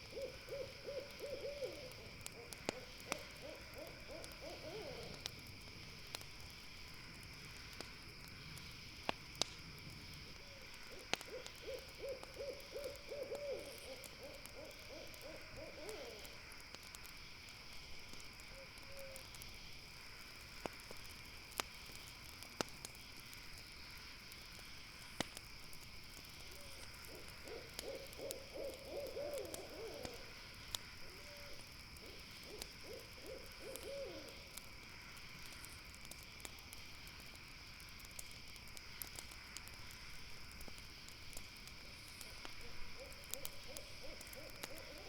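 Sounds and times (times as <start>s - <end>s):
owl hooting: 0.0s - 5.2s, 10.9s - 16.3s, 26.6s - 30.3s, 31.1s - 34.4s, 43.0s - 45.0s
campfire crackling: 0.0s - 45.0s
night insects chorus: 0.0s - 45.0s.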